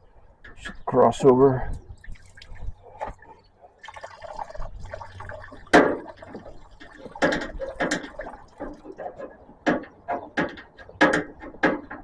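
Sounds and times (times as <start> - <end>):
fuel dripping into pan: 1.9 - 9.3.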